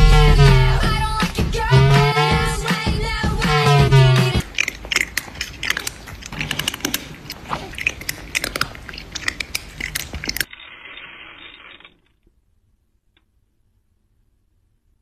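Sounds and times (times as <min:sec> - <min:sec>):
crunchy chewing: 0:04.0 - 0:10.5.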